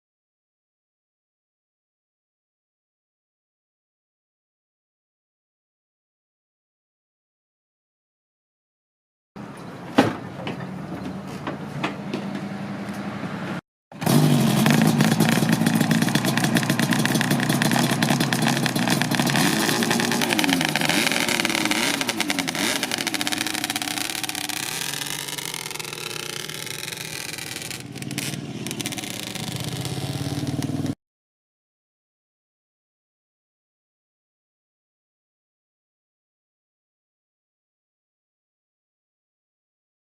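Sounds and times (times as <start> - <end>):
engine revving with throttle blips: 12.2 - 31.0
motorcycle engine running: 14.0 - 31.0.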